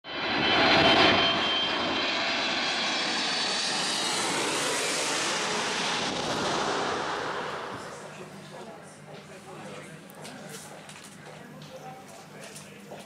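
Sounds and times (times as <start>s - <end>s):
high engine whine: 0.1s - 10.0s
jet engines running: 0.1s - 10.0s.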